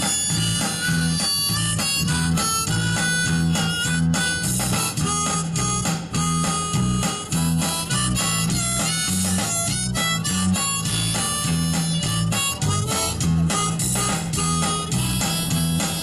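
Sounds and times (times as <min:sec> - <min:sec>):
bass rhythm: 0:00.0 - 0:16.0
blues band playing: 0:00.0 - 0:16.0
harmonica: 0:00.0 - 0:16.0.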